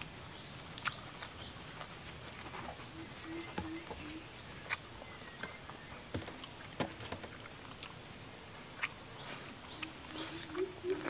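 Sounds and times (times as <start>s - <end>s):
faint high-pitched whine: 0.0s - 11.0s
person chewing: 0.5s - 3.6s, 4.6s - 8.0s, 8.6s - 11.0s
mouth smacks and clicks: 0.7s - 2.5s, 8.8s - 11.0s.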